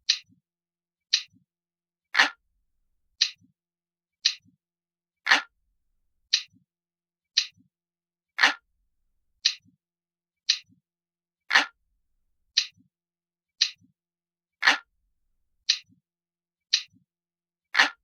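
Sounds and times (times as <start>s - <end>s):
clock ticking: 0.0s - 0.4s.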